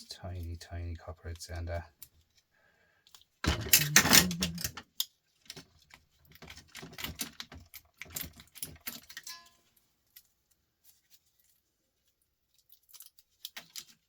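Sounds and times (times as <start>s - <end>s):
small parts clattering and clicking: 3.0s - 14.0s.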